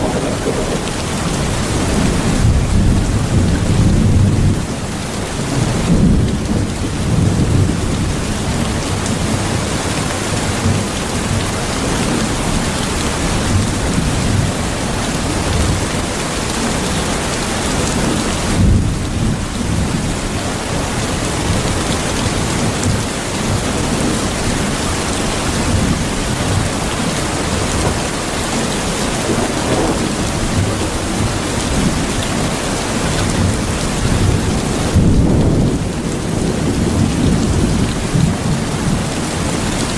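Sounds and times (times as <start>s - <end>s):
deep continuous rumble: 0.0s - 4.6s
heavy rain: 0.0s - 39.9s.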